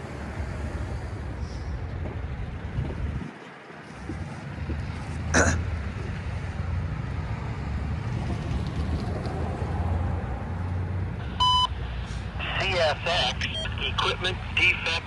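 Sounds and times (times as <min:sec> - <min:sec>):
freight train rumbling past: 0:00.0 - 0:02.8.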